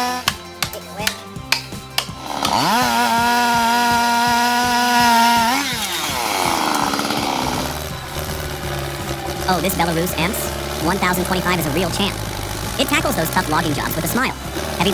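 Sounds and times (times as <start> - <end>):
chainsaw revving: 0.0 - 14.9
sharp knocks: 0.2 - 9.4.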